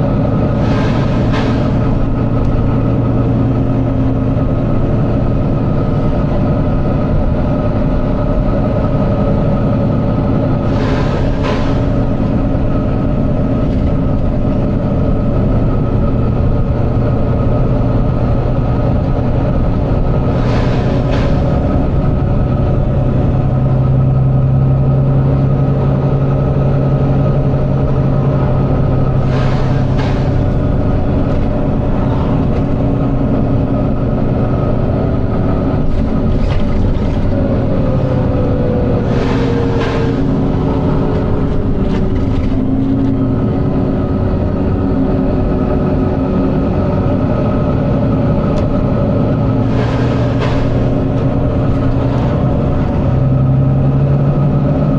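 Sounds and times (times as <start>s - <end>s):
bus diesel engine running: 0.0s - 54.9s
air brake hisses: 0.5s - 2.0s, 10.6s - 12.4s, 20.3s - 21.7s, 38.9s - 41.4s
falling whine: 9.9s - 54.2s.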